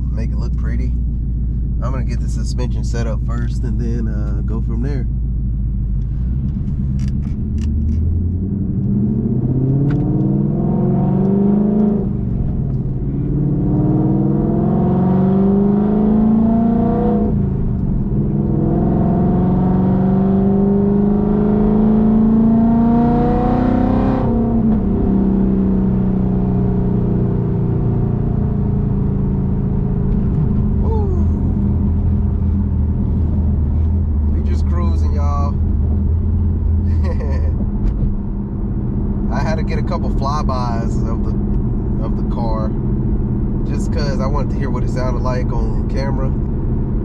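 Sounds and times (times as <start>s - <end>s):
car engine accelerating: 0.0s - 47.0s.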